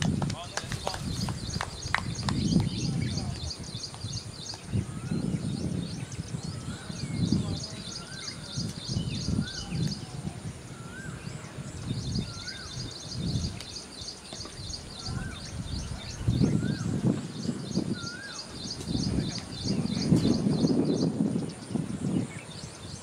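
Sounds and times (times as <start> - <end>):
low gusty rumble: 0.0 - 23.0
bird whistling: 12.0 - 17.0, 17.7 - 21.0.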